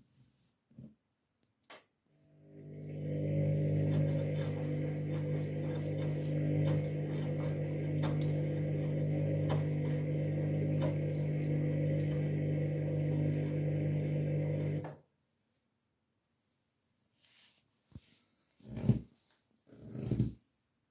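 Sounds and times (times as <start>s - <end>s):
washing machine hum: 2.3s - 15.0s.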